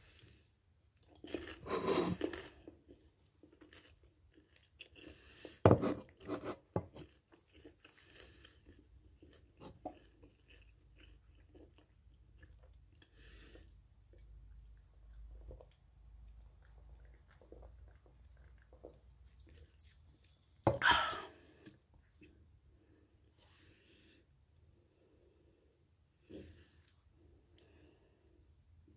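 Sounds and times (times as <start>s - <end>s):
close-up chewing: 0.1s - 20.8s.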